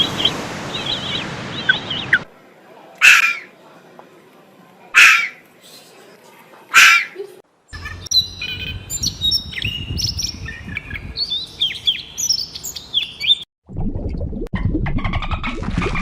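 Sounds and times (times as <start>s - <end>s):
birds chirping: 0.0s - 2.3s, 6.7s - 13.5s
harsh raspy call: 3.0s - 3.5s, 5.0s - 5.4s, 6.7s - 7.2s
low rumble: 13.7s - 15.9s.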